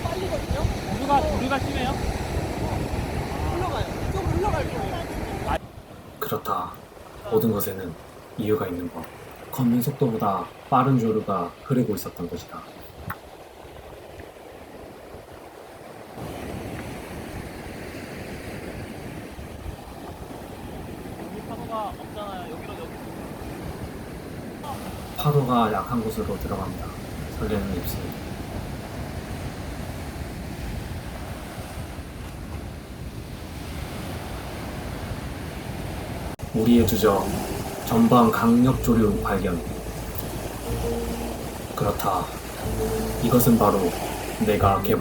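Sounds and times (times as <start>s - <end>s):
wind on microphone: 0.0s - 6.0s
ocean surf washing: 0.0s - 45.0s.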